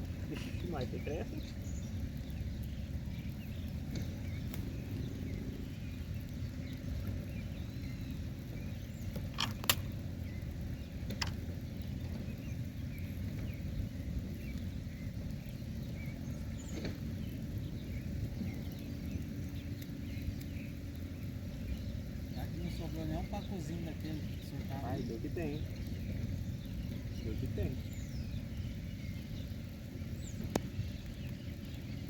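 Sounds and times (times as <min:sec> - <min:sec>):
wind rumble on microphone: 0:00.0 - 0:32.0
sharp clicks and knocks: 0:09.1 - 0:09.9, 0:11.0 - 0:11.4.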